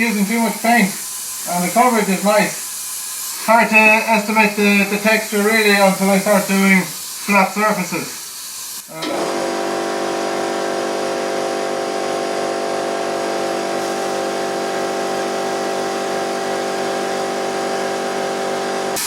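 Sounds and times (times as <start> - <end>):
air compressor running: 0.0 - 19.0.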